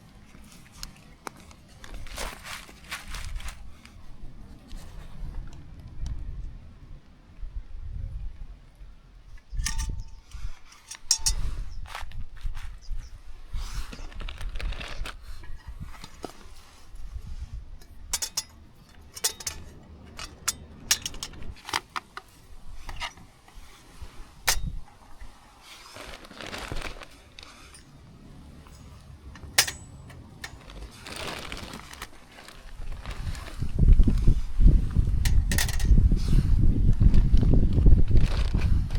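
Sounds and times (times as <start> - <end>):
rustling: 0.0 - 5.5, 9.6 - 38.9
metal objects clinking: 9.6 - 11.7, 17.8 - 22.0, 27.4 - 32.6, 35.3 - 35.9.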